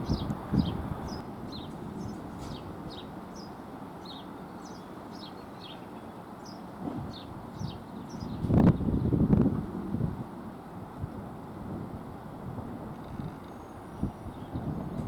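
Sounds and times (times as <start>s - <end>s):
low outdoor rumble: 0.0s - 5.4s.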